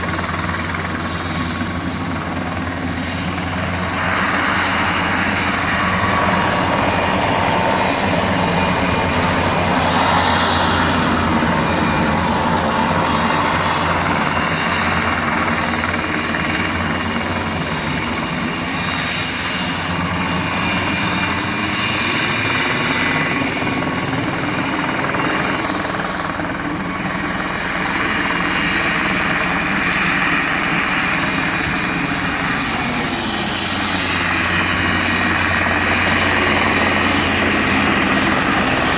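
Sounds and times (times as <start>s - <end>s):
rotor and air rush: 0.0s - 23.8s
helicopter turbine whine: 0.0s - 38.9s.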